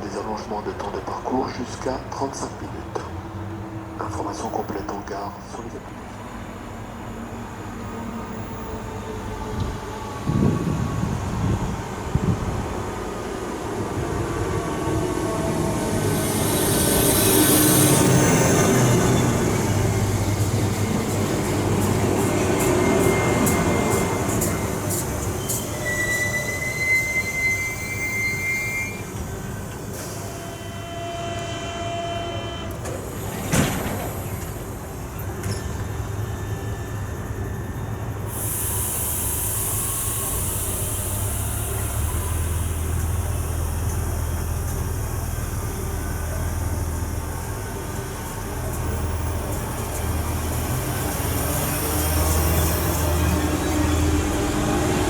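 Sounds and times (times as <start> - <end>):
train wheels and brakes squealing: 4.4 - 55.0
hiss of air: 38.3 - 44.1.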